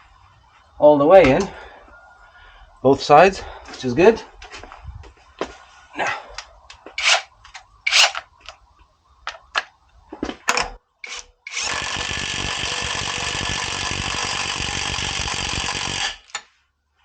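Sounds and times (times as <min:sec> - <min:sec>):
power wrench rattling: 0:07.0 - 0:07.3, 0:07.9 - 0:08.2, 0:10.5 - 0:16.4
clicks and knocks: 0:09.3 - 0:10.8.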